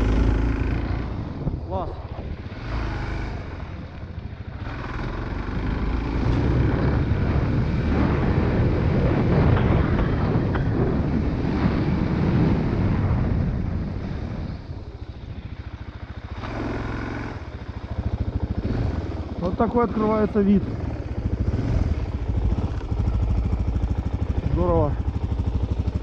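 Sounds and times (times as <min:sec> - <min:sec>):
wind on microphone: 0:00.0 - 0:04.8, 0:06.4 - 0:19.3
small vehicle engine running: 0:00.0 - 0:26.0.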